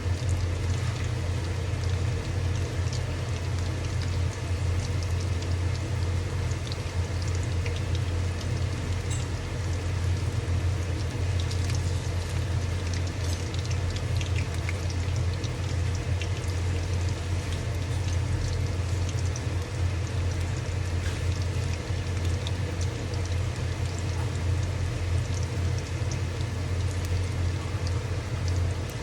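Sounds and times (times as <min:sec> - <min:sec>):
food deep-frying in oil: 0:00.0 - 0:29.0
steady low hum: 0:00.0 - 0:29.0.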